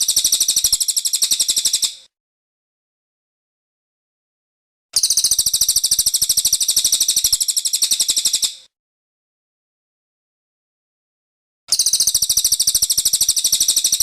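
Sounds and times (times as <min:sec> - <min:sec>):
bird trilling: 0:11.7 - 0:14.0.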